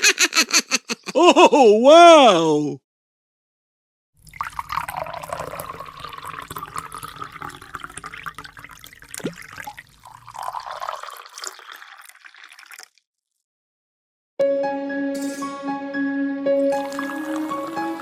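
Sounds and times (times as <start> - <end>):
water drips and clicks: 4.2 - 9.9
water pouring and splashing: 4.2 - 13.0, 16.7 - 18.0.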